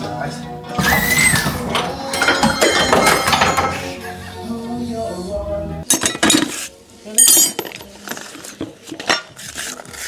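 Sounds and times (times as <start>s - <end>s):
metal tools clinking and knocking: 1.7s - 4.0s, 5.9s - 9.8s.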